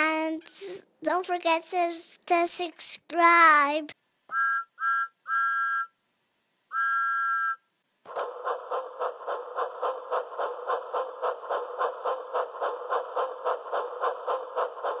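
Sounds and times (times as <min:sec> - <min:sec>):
train chugging: 0:08.1 - 0:15.0.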